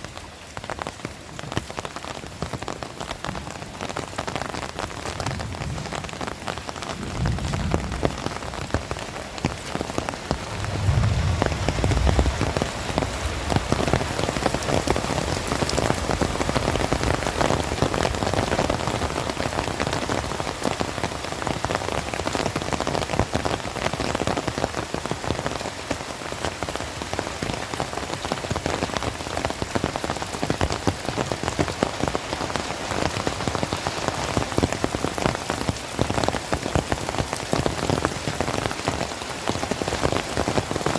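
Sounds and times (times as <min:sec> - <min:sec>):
heavy rain falling: 0:00.0 - 0:40.9
low rumble: 0:10.3 - 0:13.8.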